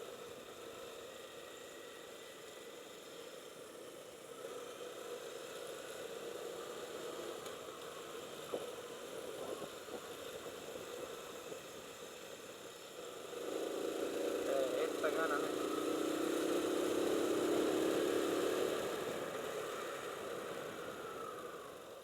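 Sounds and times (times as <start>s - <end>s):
motorcycle engine and road noise: 0.0s - 22.0s.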